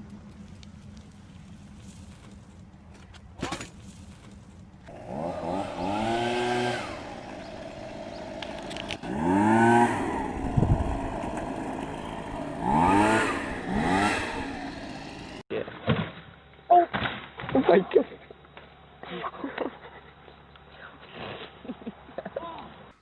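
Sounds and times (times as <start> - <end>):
small engine revving: 4.8 - 15.5.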